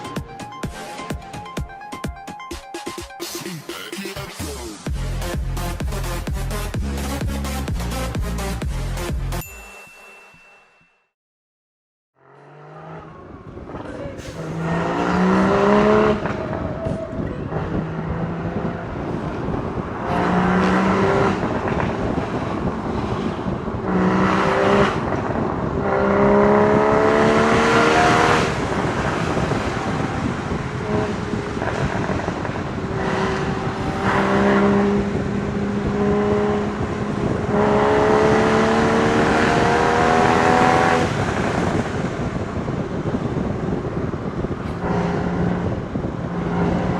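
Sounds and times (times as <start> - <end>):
sports car exhaust revving: 12.2 - 46.9
wind noise: 12.9 - 46.9.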